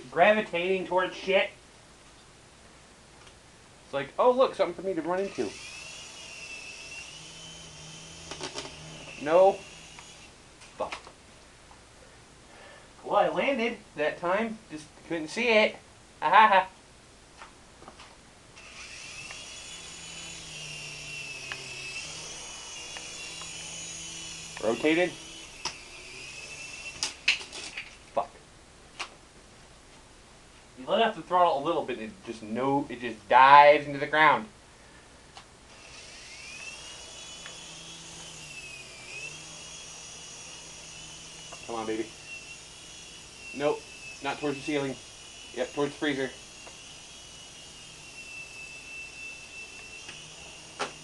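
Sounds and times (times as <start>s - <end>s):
rc helicopter motor whining: 5.1s - 10.4s, 18.6s - 28.0s, 35.7s - 51.0s.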